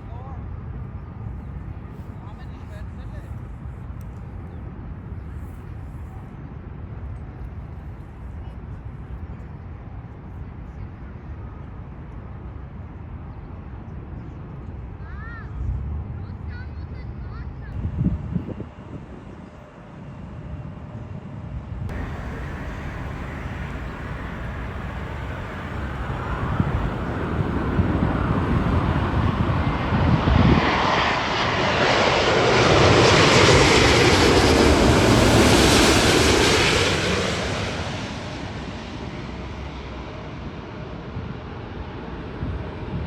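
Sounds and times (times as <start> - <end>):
jet airliner engine noise: 17.8 - 43.0.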